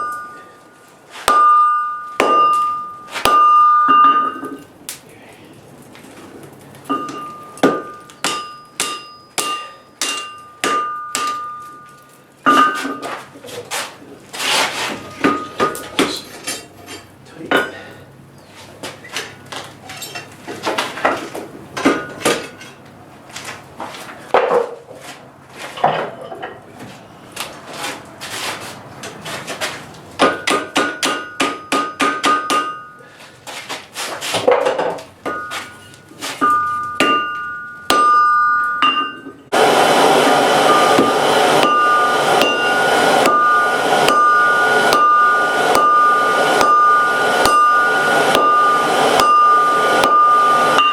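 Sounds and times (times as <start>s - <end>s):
hammer striking anvil: 0.0s - 0.6s, 1.2s - 4.6s, 6.9s - 13.0s, 30.2s - 33.0s, 35.2s - 39.6s, 40.6s - 50.9s
loud steady rushing noise: 39.5s - 50.9s.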